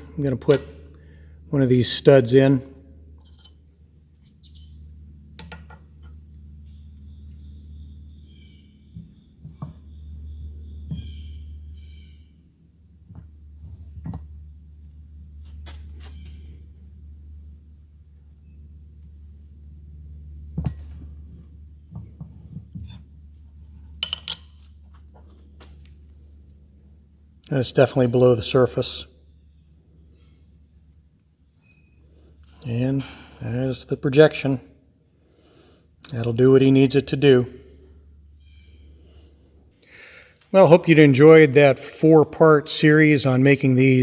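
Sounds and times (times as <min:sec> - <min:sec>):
low machine hum: 0:00.0 - 0:44.0
metal stud knocking and clinking: 0:24.0 - 0:24.7.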